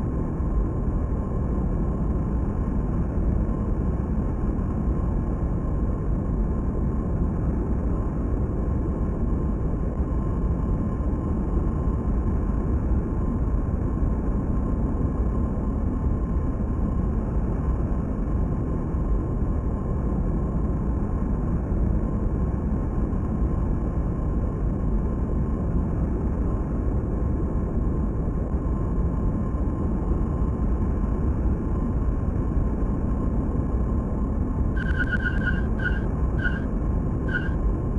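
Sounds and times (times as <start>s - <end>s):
faint engine whine: 0.0s - 37.9s
jet engines roaring: 34.8s - 36.7s.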